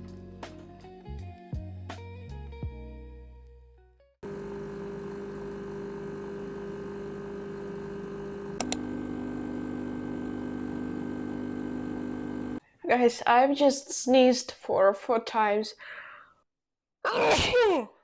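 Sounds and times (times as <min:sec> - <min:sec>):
appliance motor humming: 0:04.2 - 0:12.6
appliance clicks: 0:08.4 - 0:08.9.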